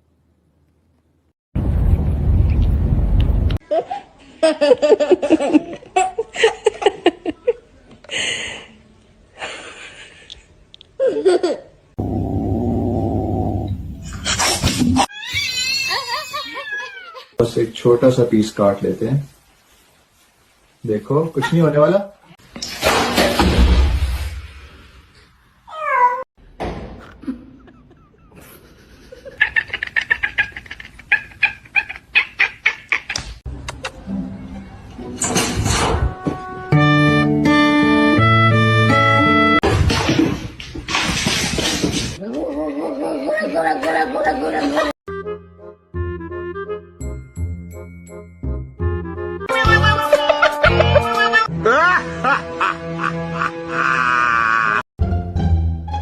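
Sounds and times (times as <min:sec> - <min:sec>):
person laughing hard: 0:27.0 - 0:31.9, 0:49.5 - 0:54.8.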